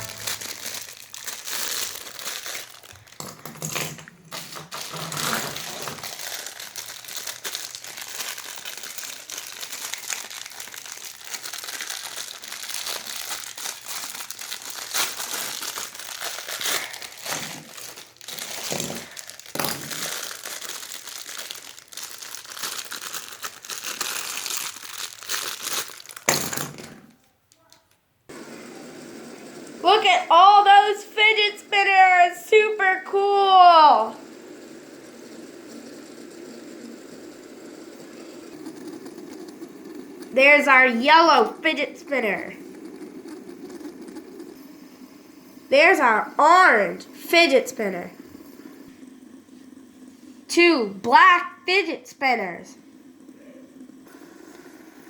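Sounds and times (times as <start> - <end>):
plastic packaging crinkling: 0.0 - 28.0.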